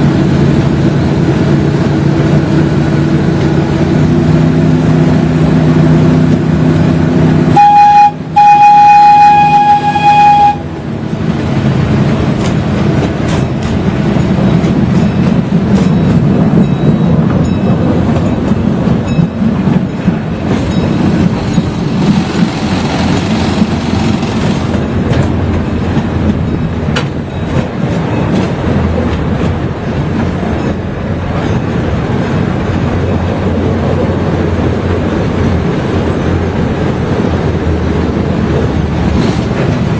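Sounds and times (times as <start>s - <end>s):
small train rolling on track: 0.0s - 39.9s
train horn blasts: 7.5s - 10.8s.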